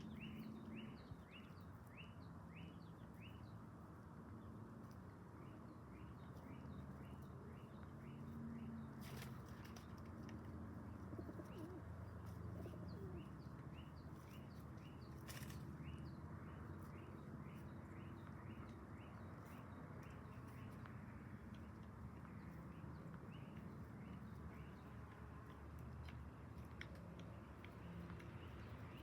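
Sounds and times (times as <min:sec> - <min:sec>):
pigeons cooing softly: 0:10.8 - 0:13.6.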